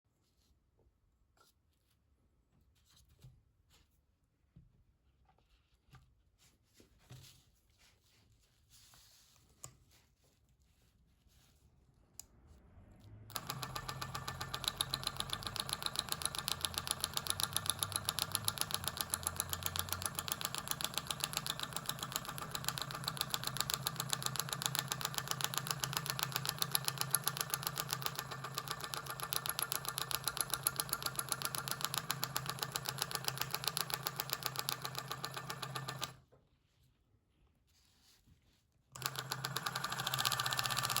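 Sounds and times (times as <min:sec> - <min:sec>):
marking pin fast tapping: 0:13.3 - 0:36.1.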